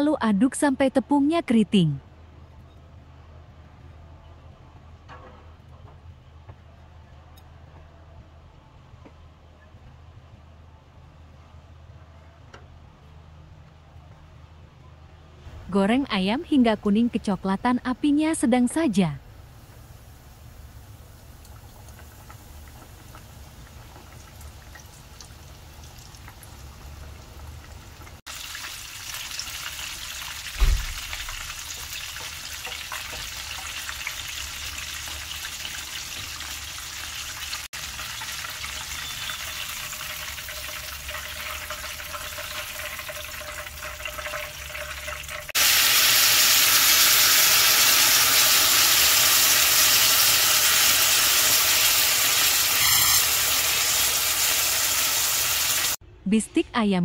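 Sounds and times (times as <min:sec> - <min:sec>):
chicken frying in hot oil: 0:19.5 - 0:56.0
sauce sizzling on hot plate: 0:19.6 - 0:56.0
dull low thump: 0:30.6 - 0:31.4.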